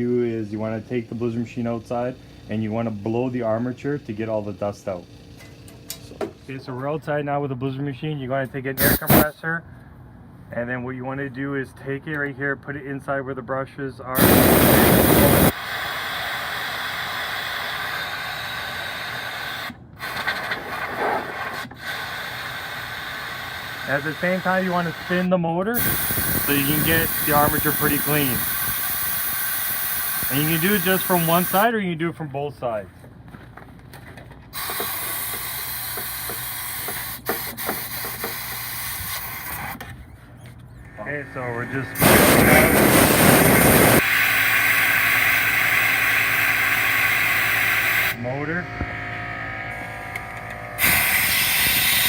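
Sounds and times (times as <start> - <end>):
compressed air hissing: 8.8 - 9.3, 14.2 - 31.7, 34.5 - 39.8, 42.0 - 48.2, 50.8 - 52.0
motor clicking as spun: 25.8 - 31.6.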